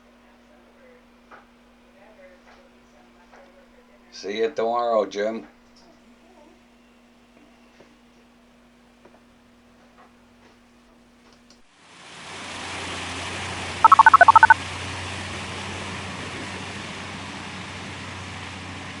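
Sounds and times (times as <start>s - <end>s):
loud electronic beeps: 13.9s - 14.6s.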